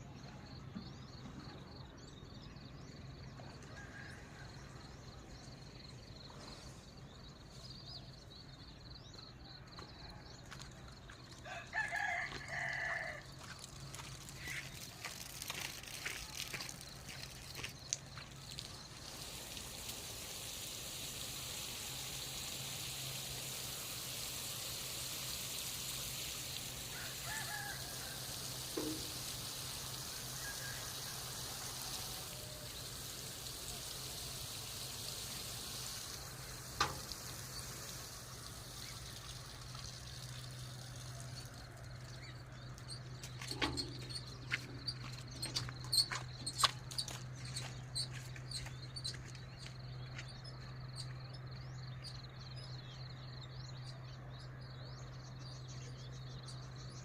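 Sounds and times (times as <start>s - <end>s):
water spraying: 11.1s - 51.2s.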